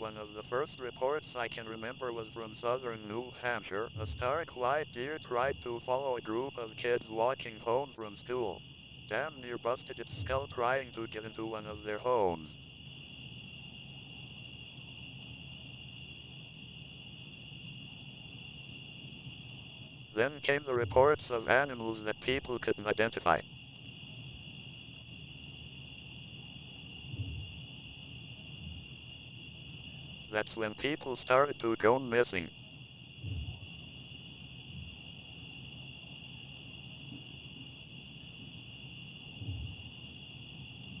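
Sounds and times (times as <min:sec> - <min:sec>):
crickets chirping: 0:00.0 - 0:41.0
high-pitched insect chorus: 0:00.0 - 0:41.0
soft low rumble: 0:33.2 - 0:33.6, 0:39.4 - 0:39.8.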